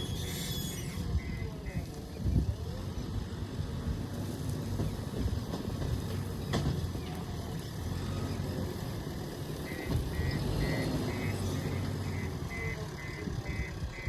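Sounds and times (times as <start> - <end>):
diesel engine rumbling: 0.0 - 14.0
reversing alarm beeping: 9.6 - 14.0.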